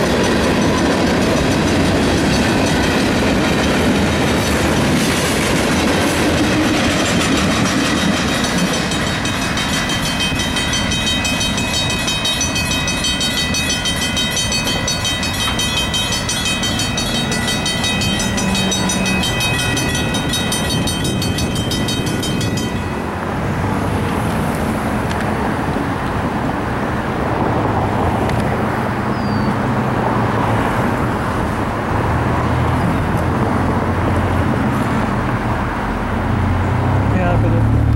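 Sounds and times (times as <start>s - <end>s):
freight train wheels rumbling: 0.0s - 37.9s
high many-toned ringing: 8.4s - 23.1s.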